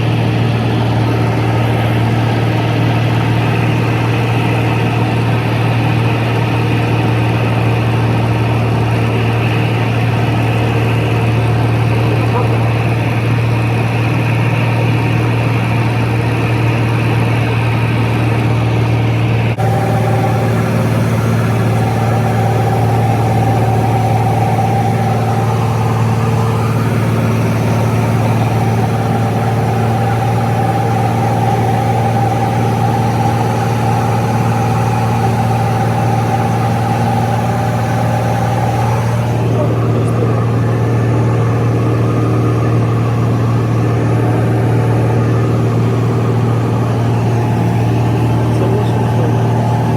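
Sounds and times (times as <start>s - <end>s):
aircraft engine drone: 0.0s - 49.9s.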